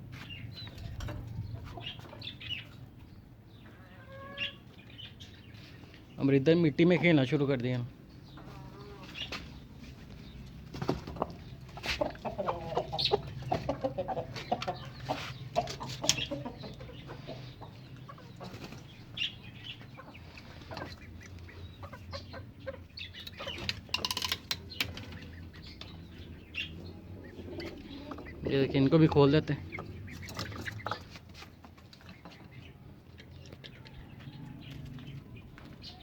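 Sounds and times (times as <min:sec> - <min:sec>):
hens clucking: 0:00.2 - 0:36.0.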